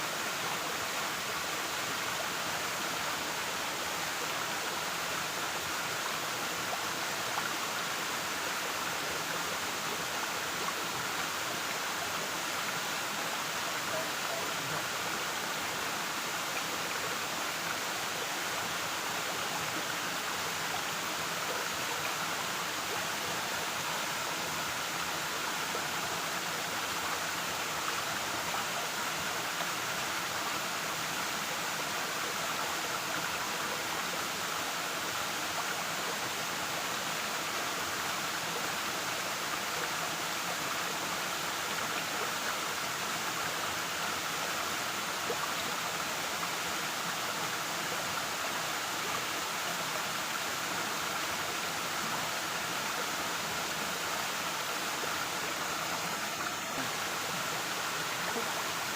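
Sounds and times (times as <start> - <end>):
waterfall rushing: 41.0 - 58.9.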